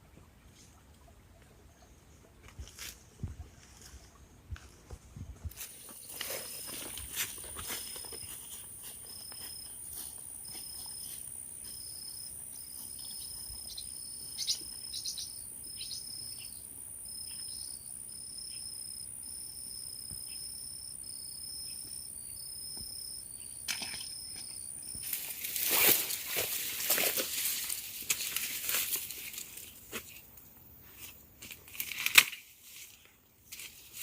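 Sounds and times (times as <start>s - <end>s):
rustling handling noise: 3.6s - 11.2s, 25.0s - 34.0s
insect trill: 5.6s - 29.8s.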